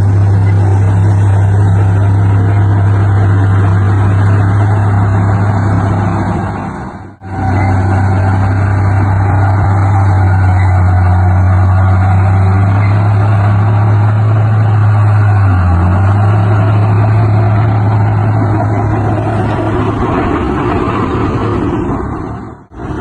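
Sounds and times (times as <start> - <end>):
heavy diesel machinery engine hum: 0.0 - 23.0.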